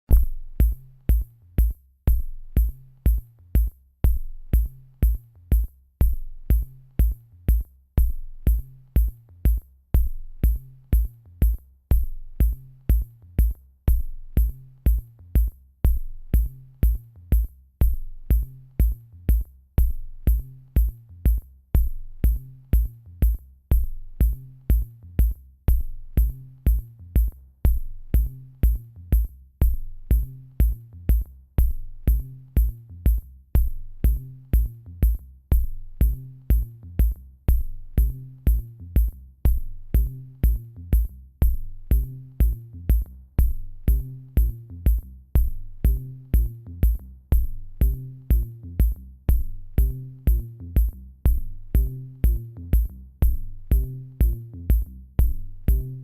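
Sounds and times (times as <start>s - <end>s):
drum machine beat: 0.0s - 56.0s
ticking hi-hat: 0.1s - 56.0s
repeating bass line: 33.6s - 56.0s.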